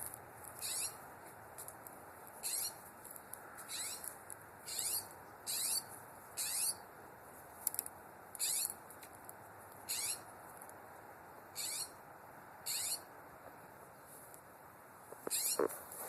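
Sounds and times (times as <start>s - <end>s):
bird calling high: 0.6s - 1.0s, 2.4s - 2.8s, 3.7s - 4.1s, 4.7s - 6.8s, 8.4s - 8.8s, 9.9s - 10.3s, 11.6s - 12.0s, 12.7s - 13.1s, 15.3s - 15.7s.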